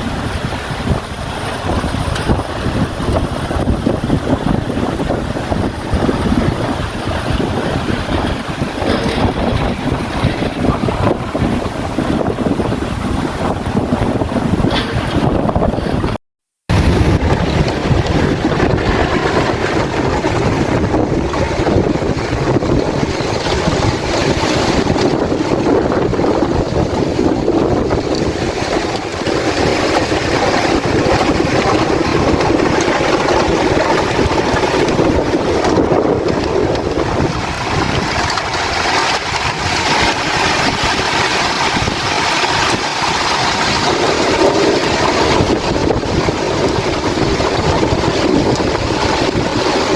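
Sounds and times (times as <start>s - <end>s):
wind buffeting the microphone: 0.0s - 49.9s
rain falling: 16.7s - 49.9s.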